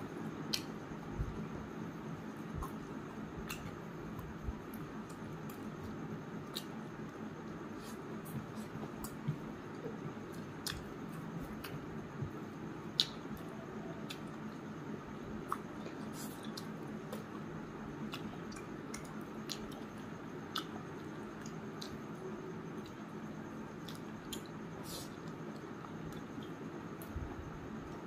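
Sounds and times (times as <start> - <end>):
low background hum: 0.0 - 28.0
person chewing wetly: 7.8 - 11.8, 15.4 - 22.0, 23.8 - 24.6.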